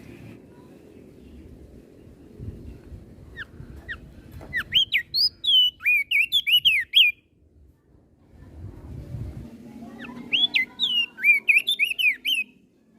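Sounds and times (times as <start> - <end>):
bird whistling song: 3.3 - 7.3, 10.0 - 12.6.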